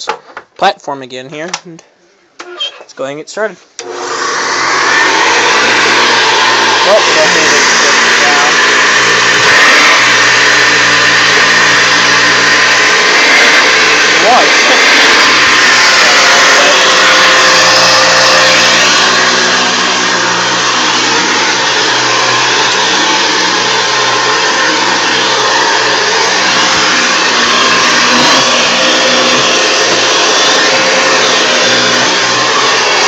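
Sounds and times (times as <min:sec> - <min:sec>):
vacuum cleaner running: 0:03.8 - 0:33.0.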